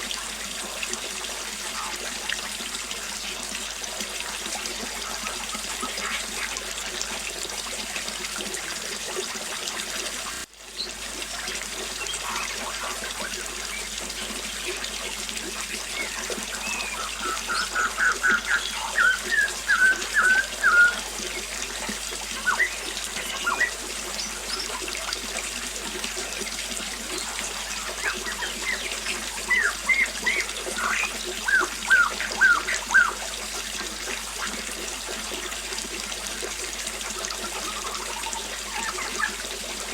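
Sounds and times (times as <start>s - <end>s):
small waterfall splashing: 0.0s - 39.9s
birds chirping: 11.9s - 14.0s, 15.8s - 25.2s, 26.2s - 33.2s, 37.4s - 39.4s.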